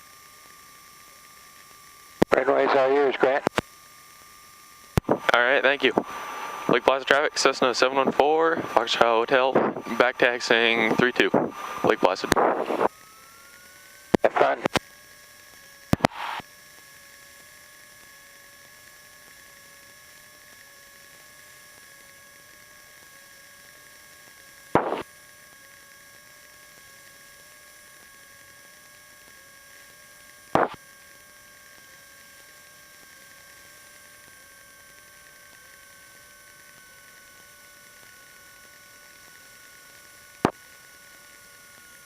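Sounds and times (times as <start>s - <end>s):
electrical hum and whine: 0.0s - 42.0s
loud radio crackle: 2.2s - 3.6s, 4.9s - 14.8s, 15.8s - 16.5s, 24.7s - 25.1s, 30.5s - 30.8s.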